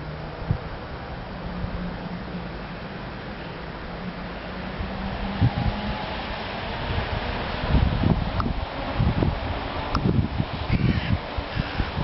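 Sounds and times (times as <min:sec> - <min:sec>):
wind noise on microphone: 0:00.3 - 0:00.9, 0:04.8 - 0:12.0.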